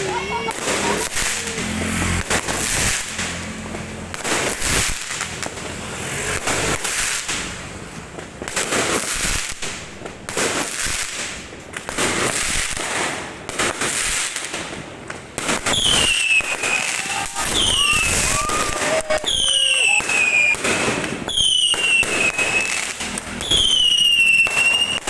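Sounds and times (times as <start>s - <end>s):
falling firework whistle: 0.0s - 3.0s, 15.6s - 25.0s
fireworks bangs and crackling: 0.0s - 25.0s.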